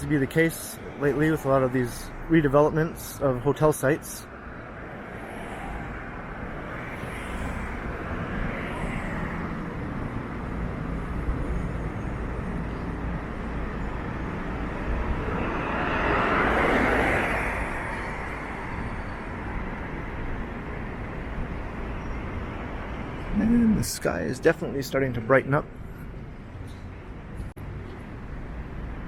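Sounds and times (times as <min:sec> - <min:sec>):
steady traffic hum: 0:00.0 - 0:29.0
vehicle passing by: 0:14.0 - 0:21.1.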